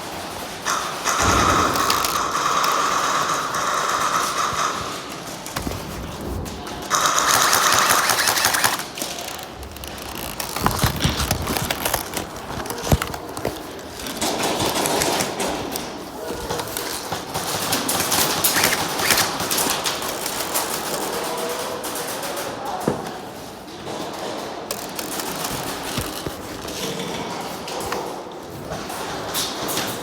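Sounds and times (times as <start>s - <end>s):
scattered clicks: 0.6s - 22.5s, 24.7s - 27.1s
airsoft gun full-auto bursts: 0.7s - 5.2s, 6.9s - 10.4s.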